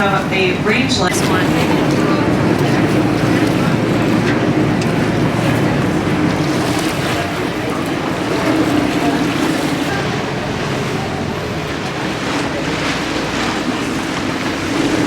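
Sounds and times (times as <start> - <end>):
water wash: 0.0 - 15.0.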